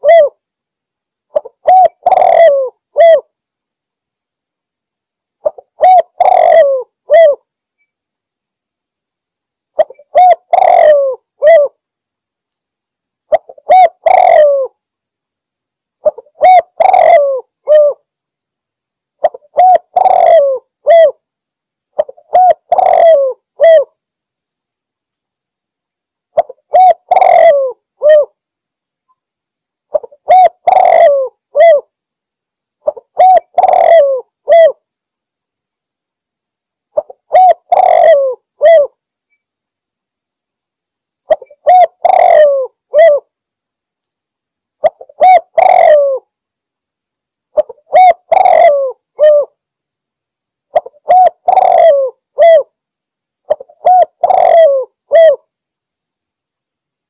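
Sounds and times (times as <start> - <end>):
dove cooing: 0.0 - 0.4, 1.3 - 3.3, 5.4 - 7.4, 9.8 - 11.8, 13.3 - 14.8, 16.0 - 18.0, 19.2 - 21.2, 22.0 - 23.9, 26.4 - 28.4, 29.9 - 31.9, 32.8 - 34.8, 37.0 - 39.0, 41.3 - 43.3, 44.8 - 46.3, 47.6 - 49.6, 50.7 - 52.7, 53.5 - 55.4.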